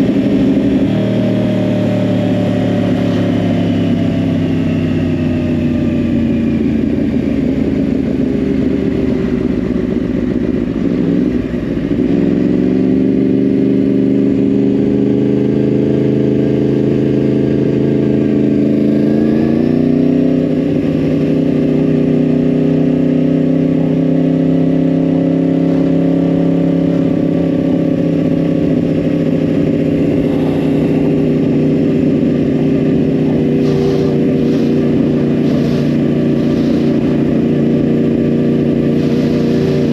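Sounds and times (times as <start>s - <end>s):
motorcycle engine under way: 0.0s - 39.9s.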